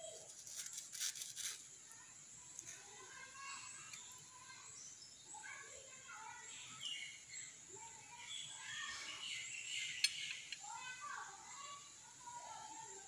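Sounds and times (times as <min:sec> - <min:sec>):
birds chirping: 0:01.7 - 0:13.0.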